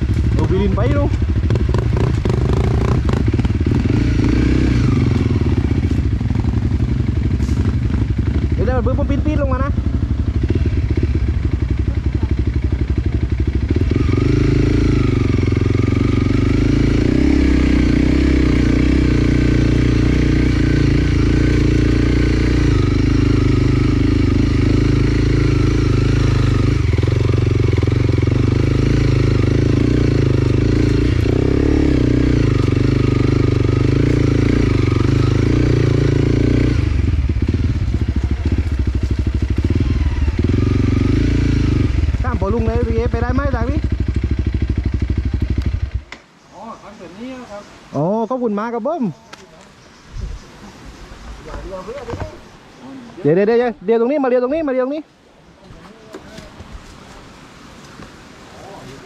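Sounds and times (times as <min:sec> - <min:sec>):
dirt bike engine revving: 0:00.0 - 0:46.2.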